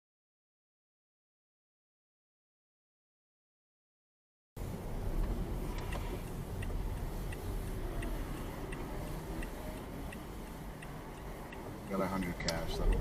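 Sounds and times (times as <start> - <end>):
moving car drone: 4.6 - 13.0
turn signal ticking: 4.6 - 13.0.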